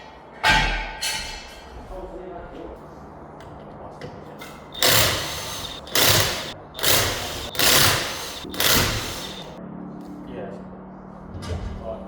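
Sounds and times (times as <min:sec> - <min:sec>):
power tool rattle and hiss: 0:04.6 - 0:09.6.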